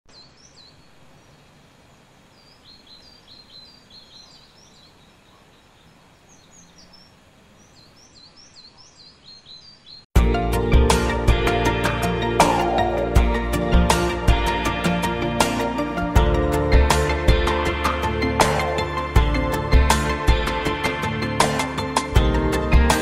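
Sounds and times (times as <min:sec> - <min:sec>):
faint steady hiss: 0:00.1 - 0:10.1
small birds chirping: 0:00.1 - 0:10.1
loud music: 0:10.2 - 0:23.0.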